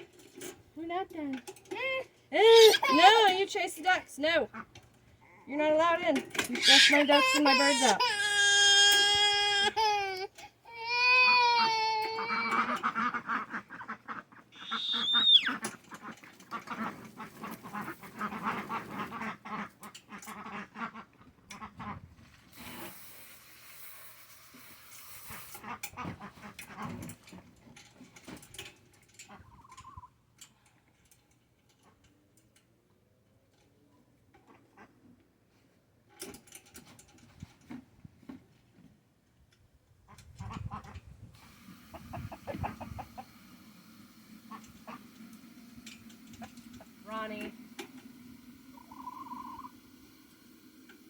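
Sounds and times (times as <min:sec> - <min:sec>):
child wailing: 0:02.5 - 0:03.1, 0:06.6 - 0:12.6
chickens clicking and tapping: 0:12.1 - 0:22.0, 0:25.3 - 0:32.2, 0:40.2 - 0:51.0
ducks quacking: 0:12.2 - 0:22.0, 0:41.8 - 0:43.4
chicken warbling trill: 0:14.6 - 0:15.6, 0:48.8 - 0:49.7
high squeal dropping in pitch: 0:14.6 - 0:15.6.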